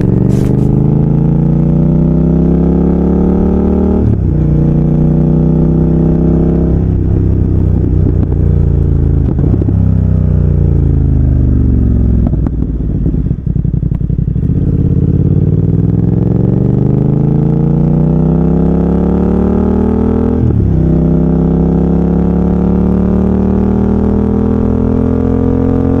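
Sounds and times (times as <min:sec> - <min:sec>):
exhaust crackles: 0:00.0 - 0:01.4
motorcycle engine revving: 0:00.0 - 0:26.0.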